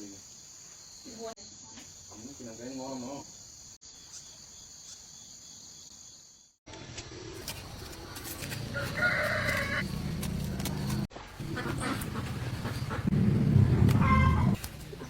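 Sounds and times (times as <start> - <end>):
rooster crowing: 8.7 - 9.9.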